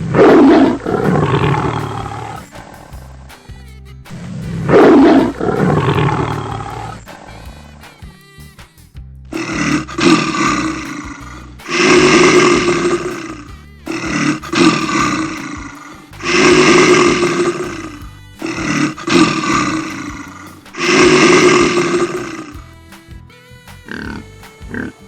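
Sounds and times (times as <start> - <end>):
big cat roaring: 0.0 - 2.5, 4.7 - 7.0, 9.4 - 22.6.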